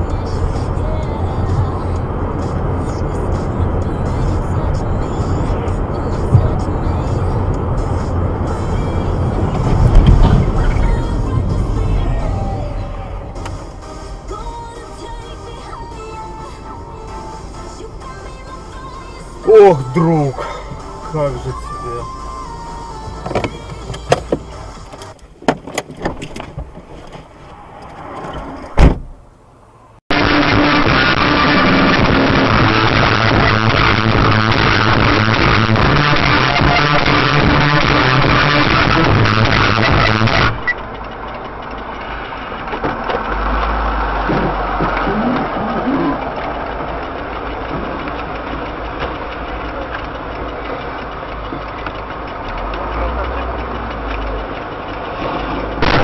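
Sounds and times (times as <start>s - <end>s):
music: 0.0s - 25.2s, 30.1s - 40.5s
car engine and road noise: 0.0s - 56.0s
heavy thump: 9.5s - 10.6s, 28.3s - 29.2s
sharp knocks and clicks: 23.2s - 29.1s.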